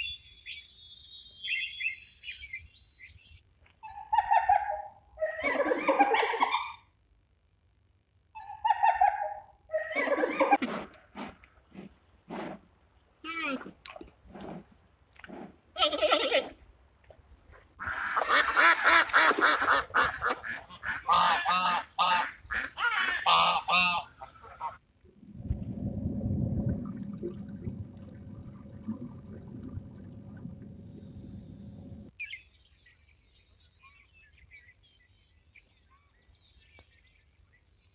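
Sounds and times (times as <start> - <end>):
geese honking: 17.8 - 24.8
low steady rumble: 25.0 - 32.1.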